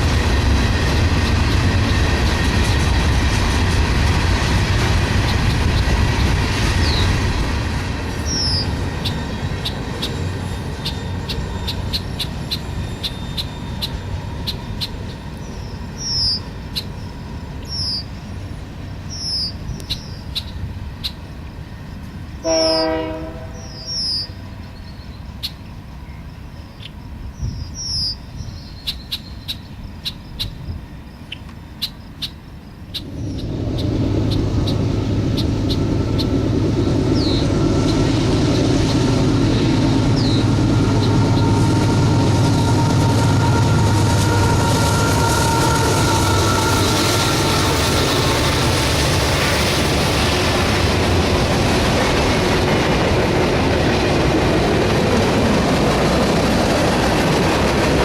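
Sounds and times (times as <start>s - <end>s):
freight train rumbling: 0.0s - 58.0s
train wheel clicks: 1.0s - 7.0s.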